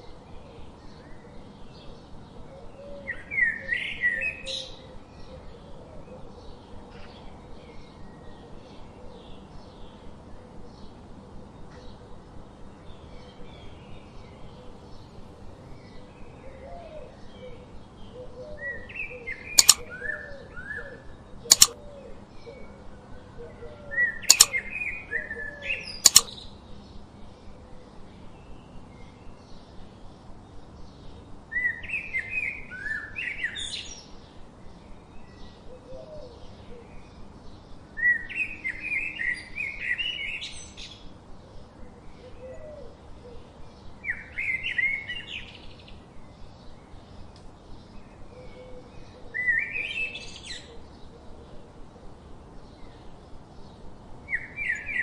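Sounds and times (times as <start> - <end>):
sharp clicks: 19.6 - 19.8, 21.5 - 21.8, 24.3 - 24.5, 26.0 - 26.3
songbird chirping: 19.6 - 19.9, 21.5 - 21.8, 24.3 - 24.6, 26.0 - 26.4, 54.3 - 55.0.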